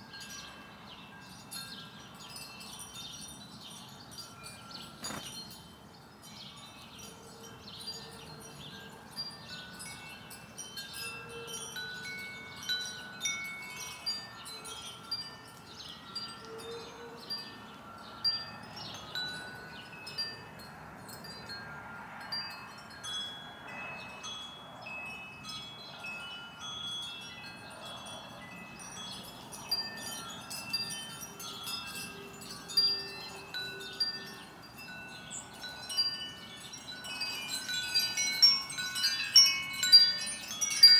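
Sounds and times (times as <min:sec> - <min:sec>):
wind chimes ringing: 0:00.0 - 0:40.9.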